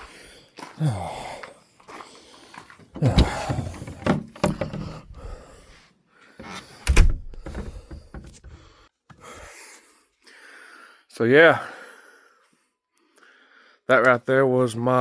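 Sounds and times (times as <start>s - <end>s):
door opening and shutting: 2.8s - 5.4s, 6.4s - 8.6s.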